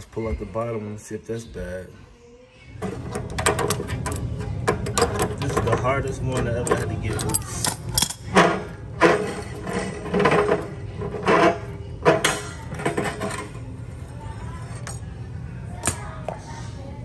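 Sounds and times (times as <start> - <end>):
metal wrench knocking and clanking: 2.9 - 13.6.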